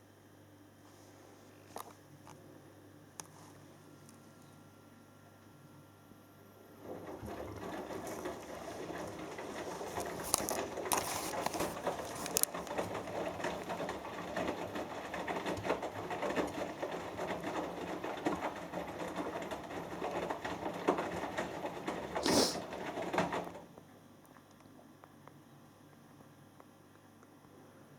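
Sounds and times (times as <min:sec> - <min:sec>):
faint motor hum: 0:00.0 - 0:27.9
water sloshing in washing machine: 0:06.7 - 0:23.7.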